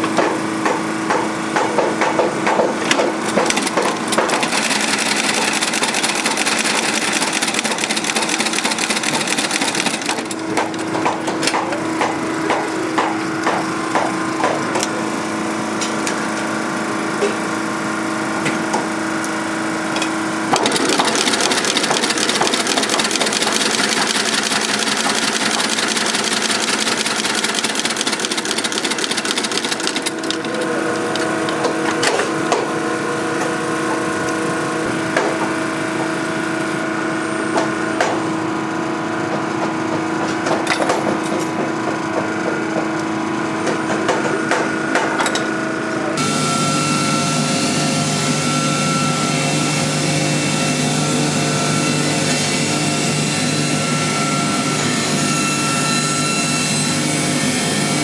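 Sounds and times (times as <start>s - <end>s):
machine motor hum: 46.0s - 58.0s.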